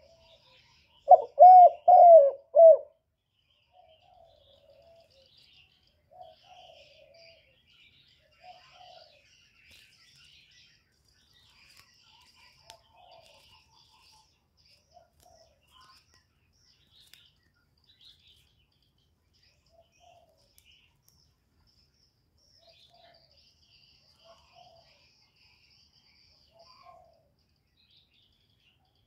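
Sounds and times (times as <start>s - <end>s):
small birds chirping: 0.0s - 29.0s
doves cooing: 1.1s - 3.0s, 6.1s - 7.5s.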